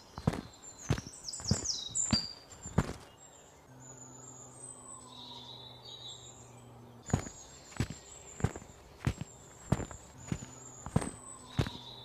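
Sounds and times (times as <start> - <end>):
birds chirping: 0.0 - 12.0
faint low hum: 0.0 - 12.0
footsteps: 0.2 - 3.1, 7.1 - 11.9.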